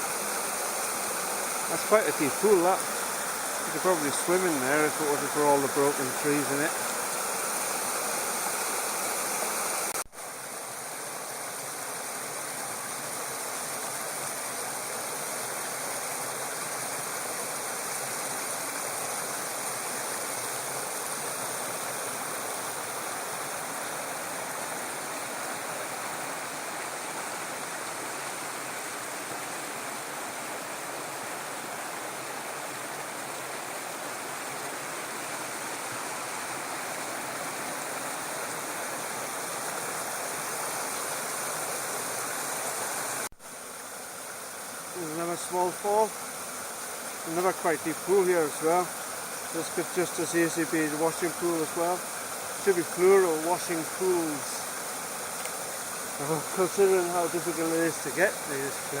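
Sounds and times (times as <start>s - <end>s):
small waterfall rushing: 0.0s - 59.0s.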